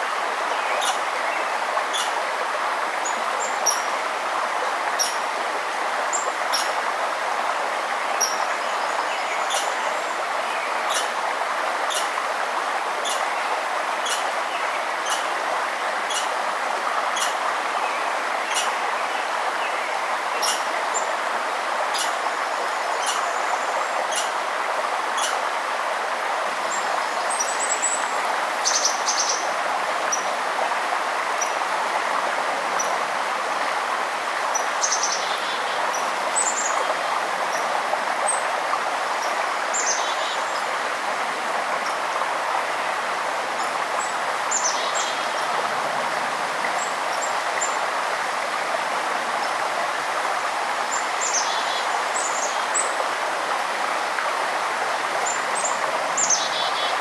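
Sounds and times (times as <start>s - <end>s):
stream rushing: 0.0s - 57.0s
songbirds chirping and trilling: 8.1s - 11.2s, 13.0s - 15.3s, 21.9s - 24.4s.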